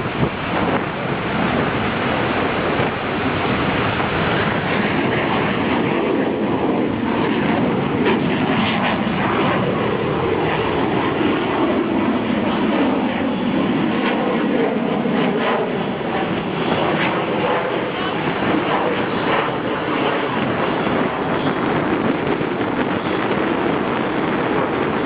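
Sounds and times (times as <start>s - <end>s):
jet roar: 0.0s - 25.0s.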